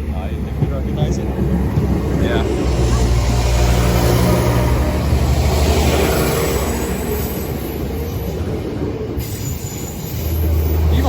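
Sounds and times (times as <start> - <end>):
diesel train engine drone: 0.0 - 11.0
train rail noise: 0.0 - 11.0.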